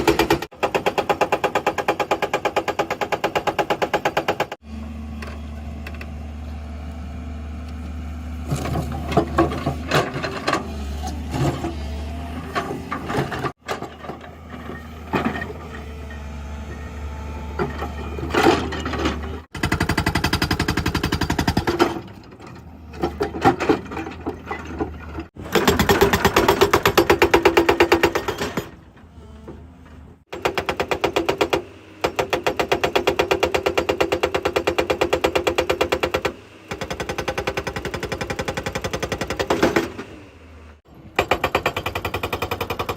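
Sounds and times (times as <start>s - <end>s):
hydraulic breaker hammering rock: 0.0s - 4.6s, 17.4s - 22.1s, 23.0s - 28.8s, 30.3s - 40.1s, 41.0s - 42.9s
excavator engine running: 4.6s - 30.2s.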